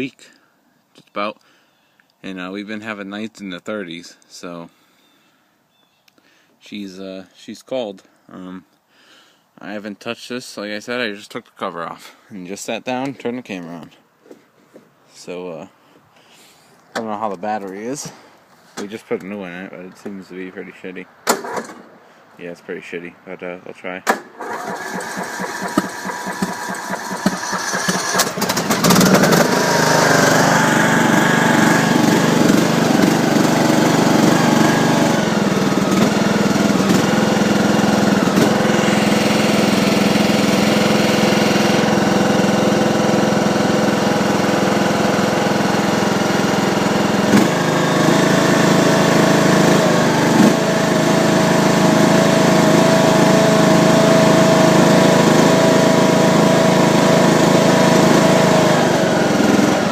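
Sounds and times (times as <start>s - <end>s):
starter cranking engine: 21.3s - 21.8s, 24.1s - 59.9s
lawn tractor engine running: 21.4s - 21.7s, 24.4s - 59.9s.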